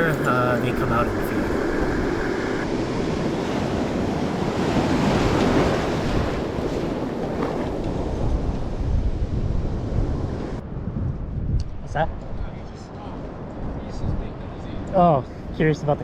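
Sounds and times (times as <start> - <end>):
ocean surf washing onto beach: 0.0 - 8.9
wind buffeting microphone: 0.0 - 16.0.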